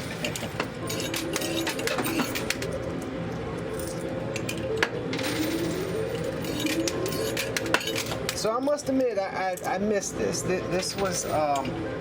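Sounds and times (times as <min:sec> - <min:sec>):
coins dropping and clinking: 0:00.0 - 0:02.9, 0:03.7 - 0:09.0
coins rattling and sliding: 0:00.0 - 0:02.9, 0:03.7 - 0:08.4
coin pusher machine hum: 0:00.0 - 0:12.0.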